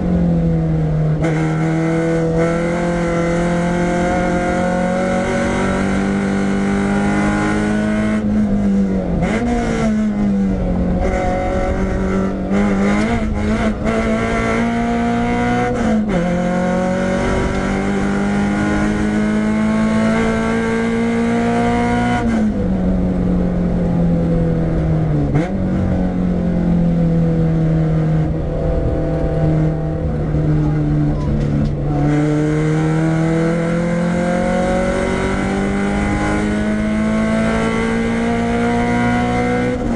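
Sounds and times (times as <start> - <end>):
car engine accelerating hard: 0.0 - 39.9.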